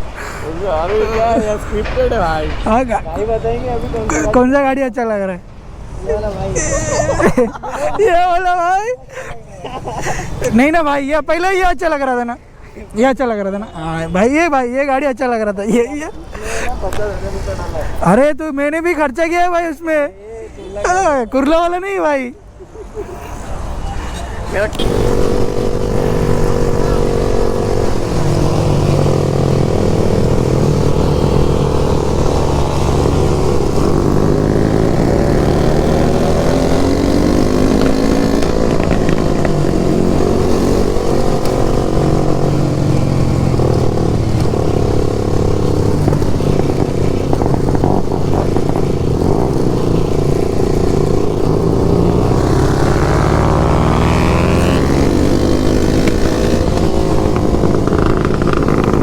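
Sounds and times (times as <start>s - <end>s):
motorcycle engine accelerating: 24.7s - 59.0s.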